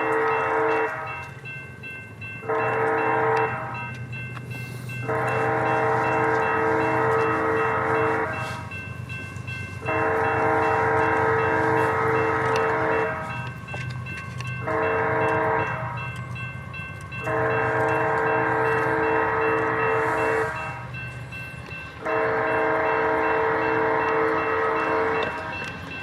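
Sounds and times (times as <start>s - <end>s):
locomotive horn blasts: 0.0s - 1.2s, 2.4s - 3.8s, 5.0s - 8.7s, 9.8s - 13.9s, 14.6s - 16.0s, 17.2s - 20.9s, 22.0s - 25.7s
low locomotive rumble: 0.0s - 26.0s.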